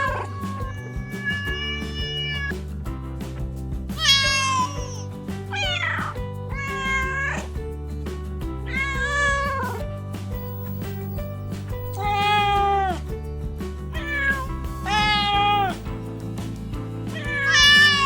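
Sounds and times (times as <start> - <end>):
cat meowing: 0.0 - 2.6, 4.0 - 7.6, 8.7 - 9.8, 11.7 - 13.1, 13.9 - 15.9, 17.1 - 18.0
background music: 0.0 - 18.0.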